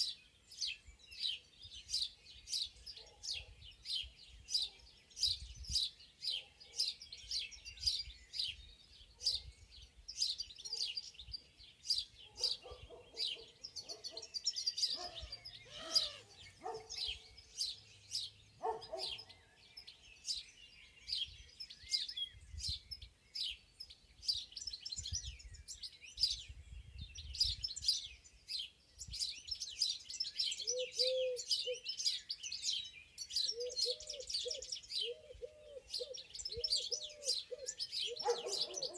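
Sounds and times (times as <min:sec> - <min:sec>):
songbirds chirping and trilling: 0:00.0 - 0:38.9
dove cooing: 0:15.0 - 0:16.4, 0:30.7 - 0:31.4, 0:33.6 - 0:38.9.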